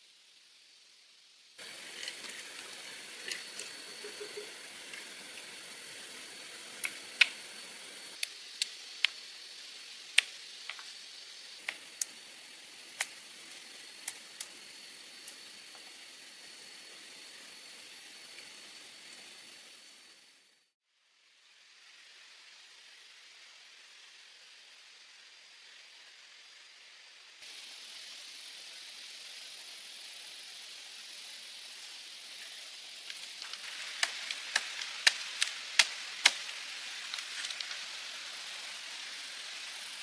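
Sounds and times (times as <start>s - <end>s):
steady hiss: 0.0s - 40.0s
wood fire crackling: 1.6s - 9.3s, 33.0s - 39.8s.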